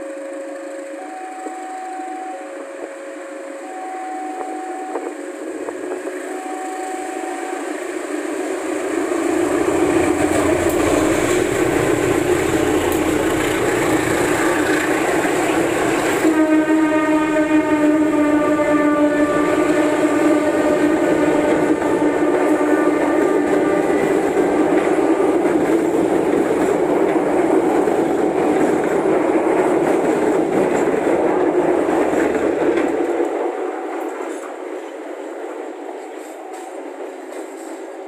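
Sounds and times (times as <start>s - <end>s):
locomotive horn blast: 0.0s - 8.0s, 9.7s - 25.8s
two-tone crossing warning signal: 0.0s - 8.6s, 9.3s - 28.8s, 35.7s - 37.9s
train rumble: 0.0s - 38.0s
train wheel clatter: 7.8s - 38.0s.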